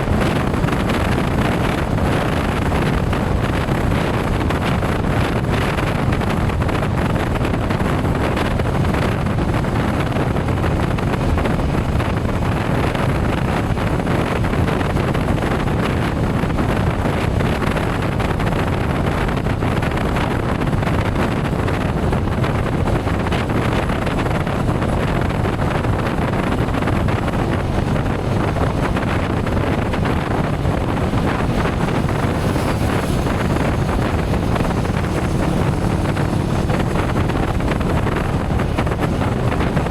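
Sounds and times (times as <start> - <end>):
motorcycle engine and tyre noise: 0.0 - 39.9
wind rushing on microphone: 0.0 - 39.9.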